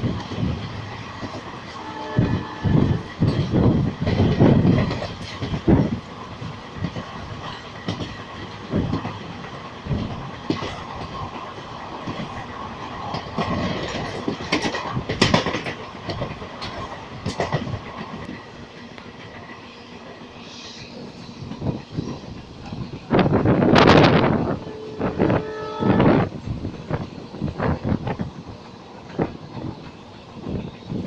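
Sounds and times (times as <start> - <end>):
train rumble: 0.0 - 31.0
wheels clacking over rails: 2.8 - 19.6.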